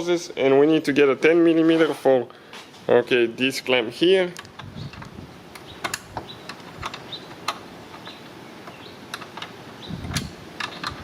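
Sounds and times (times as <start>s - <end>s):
hand tools clicking and tapping: 4.4s - 11.0s.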